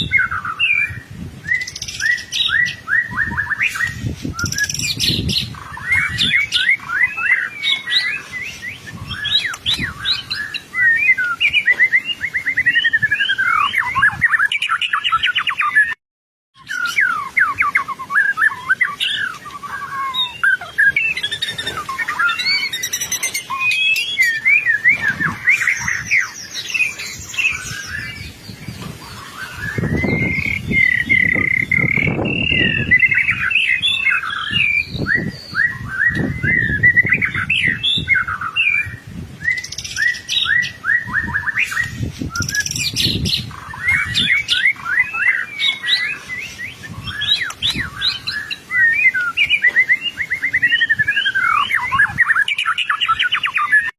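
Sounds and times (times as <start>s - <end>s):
bird singing whistled phrases: 0.0s - 16.0s, 16.6s - 53.9s.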